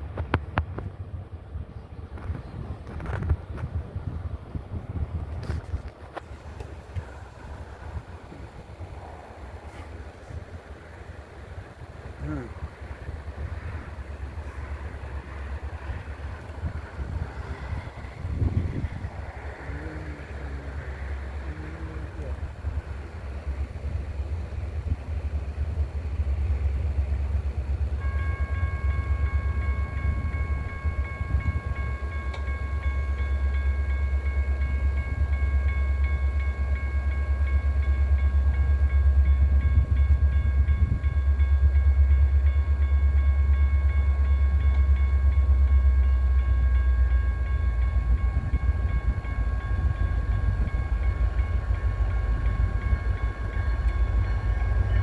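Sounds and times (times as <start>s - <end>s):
freight train rumbling past: 0.0s - 55.0s.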